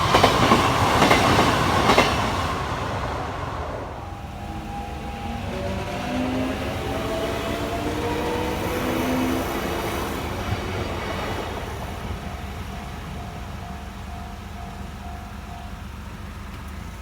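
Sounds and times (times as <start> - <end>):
crossing alarm tone: 0.0 - 16.4
train wheel and running noise: 0.0 - 17.0
traction motor whine: 3.8 - 14.7.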